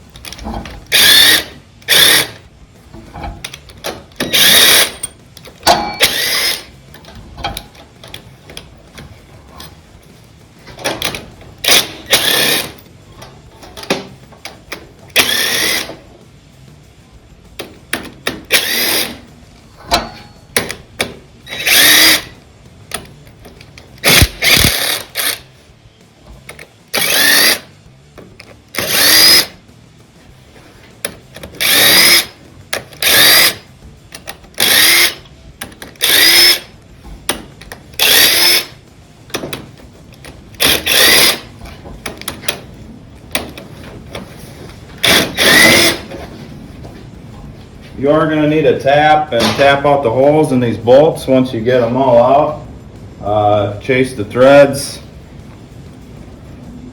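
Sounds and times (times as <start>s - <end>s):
power tool whining in bursts: 0.9s - 2.4s, 4.2s - 5.0s, 5.7s - 6.8s, 11.6s - 12.8s, 15.1s - 16.0s, 18.5s - 19.2s, 21.4s - 22.4s, 23.9s - 25.6s, 26.9s - 27.7s, 28.7s - 29.6s, 31.6s - 32.4s, 33.0s - 33.7s, 34.6s - 35.3s, 35.9s - 36.8s, 37.9s - 38.8s, 40.6s - 41.5s, 45.0s - 46.1s.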